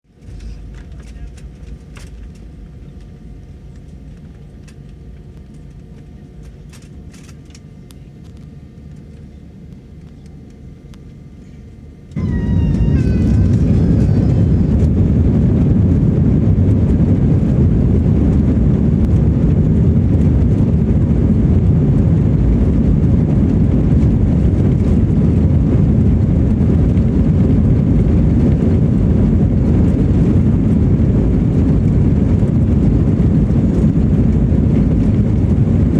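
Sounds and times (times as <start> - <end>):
jet engines rumbling: 12.1 - 35.9.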